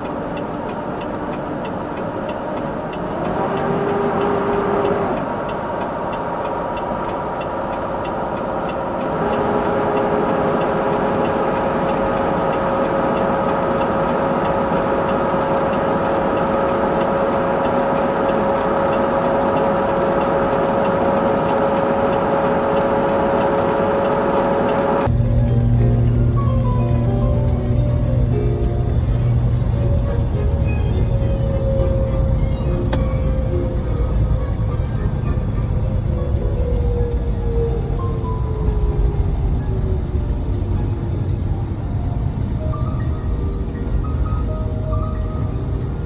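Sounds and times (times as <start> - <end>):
road noise: 0.0 - 46.0
steady tones: 0.0 - 46.0
vehicle engine running: 9.3 - 46.0.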